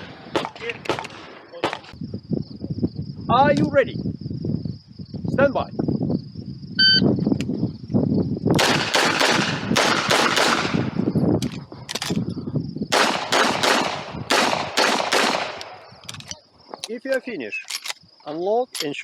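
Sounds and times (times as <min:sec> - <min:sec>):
handgun shots: 0:08.6 - 0:10.9, 0:12.9 - 0:15.8.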